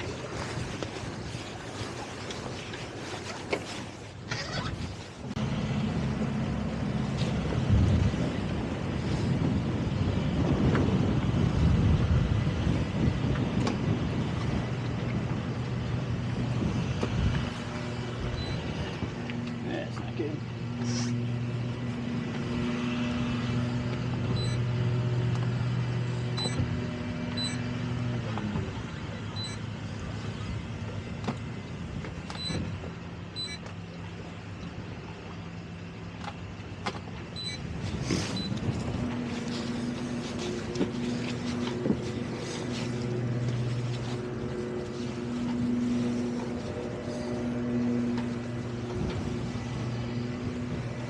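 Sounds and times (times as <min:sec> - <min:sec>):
boat engine humming: 0:00.0 - 0:51.0.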